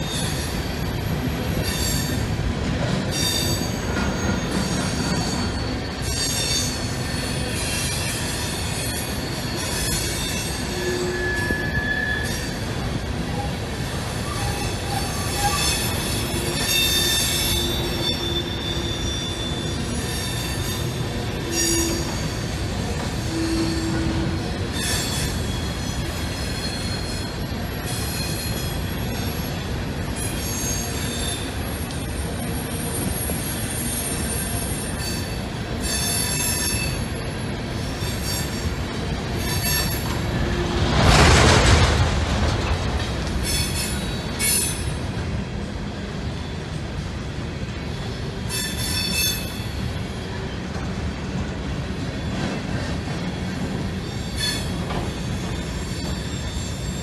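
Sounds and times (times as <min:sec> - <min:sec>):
train cars rumbling: 0:00.0 - 0:57.0
wheels squealing: 0:03.1 - 0:12.7.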